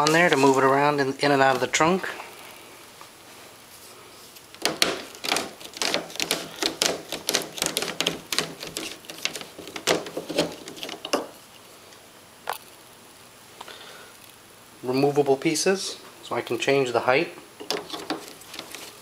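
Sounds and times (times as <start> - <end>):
plastic pipes clicking and knocking: 4.6 - 11.3, 17.6 - 18.8.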